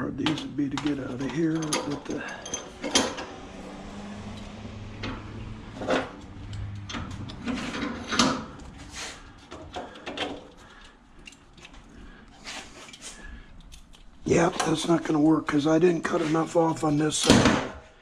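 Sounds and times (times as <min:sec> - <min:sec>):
scrap metal parts clinking: 0:00.9 - 0:03.5.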